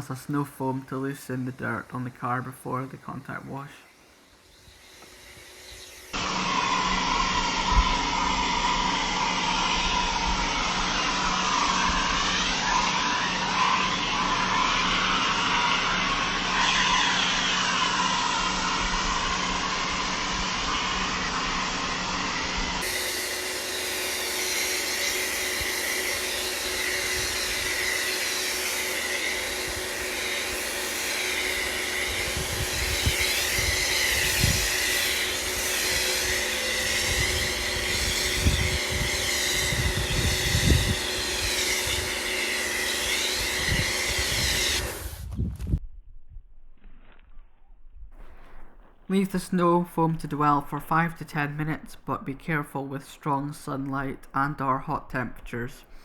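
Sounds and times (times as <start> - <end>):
motor hum: 4.5 - 45.4
pressure washer spray hissing: 9.2 - 41.9.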